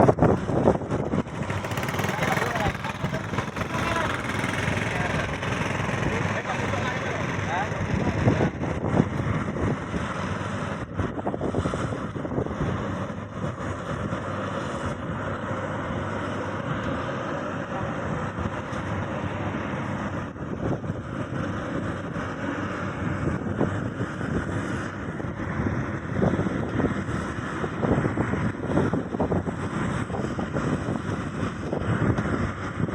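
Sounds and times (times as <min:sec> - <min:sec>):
combine harvester running: 0:00.0 - 0:32.9.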